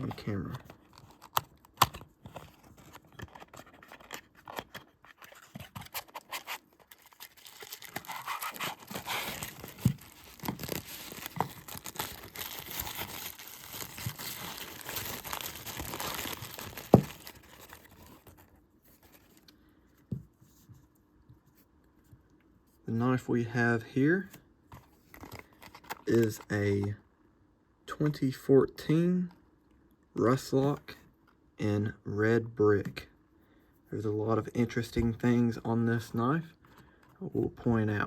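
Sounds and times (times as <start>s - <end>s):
packaging rustling and crinkling: 0.0s - 19.5s.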